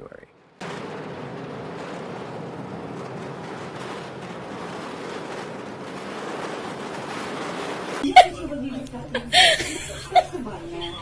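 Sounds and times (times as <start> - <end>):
strong wind rushing: 0.6 - 8.0.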